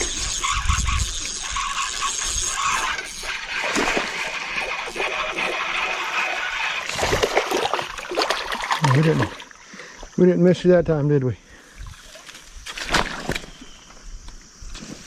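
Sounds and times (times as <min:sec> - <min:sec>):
fish splashing in water: 0:01.1 - 0:09.6.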